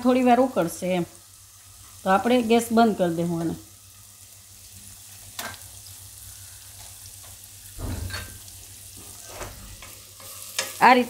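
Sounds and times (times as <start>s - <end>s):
vegetables sizzling in oil: 0.0s - 11.0s
spatula scraping and knocking wok: 6.8s - 10.9s.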